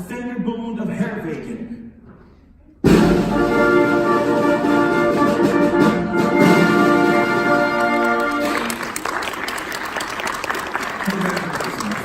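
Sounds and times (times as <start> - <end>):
orchestral fanfare: 2.8 - 9.0
audience applause: 7.6 - 12.0.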